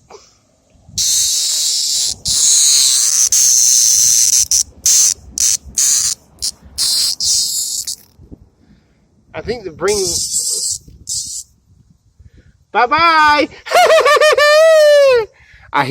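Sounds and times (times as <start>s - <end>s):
cicada buzzing loudly: 1.0s - 8.1s, 9.9s - 11.5s.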